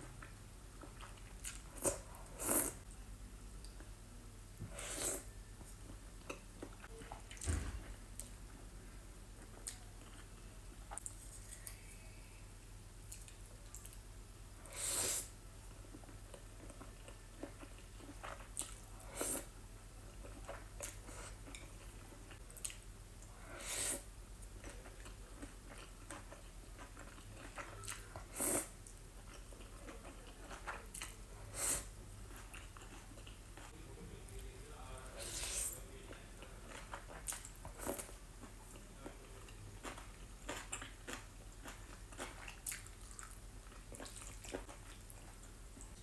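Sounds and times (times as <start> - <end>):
person chewing noodles: 0.0 - 2.8, 14.6 - 33.8, 35.2 - 46.0.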